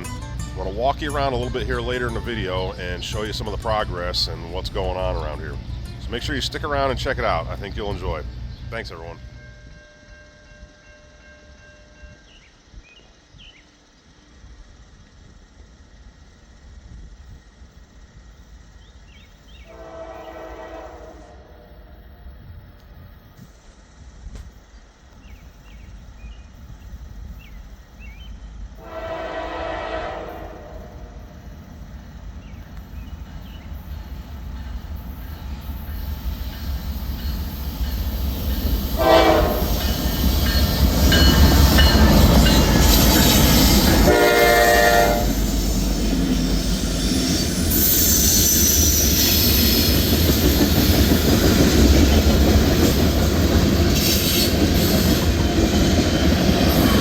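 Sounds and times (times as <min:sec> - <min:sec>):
train rumble and wheel noise: 0:00.0 - 0:57.0
locomotive horn blasts: 0:19.7 - 0:21.9, 0:28.8 - 0:31.2, 0:39.0 - 0:45.4.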